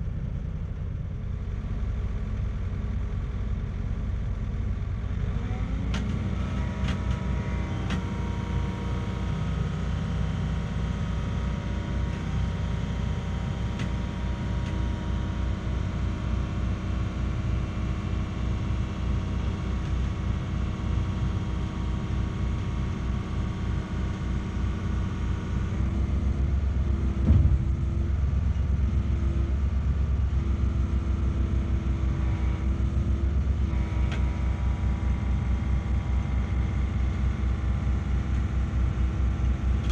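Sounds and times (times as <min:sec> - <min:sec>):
diesel truck engine running: 0:00.0 - 0:39.9
single knock: 0:27.2 - 0:27.8.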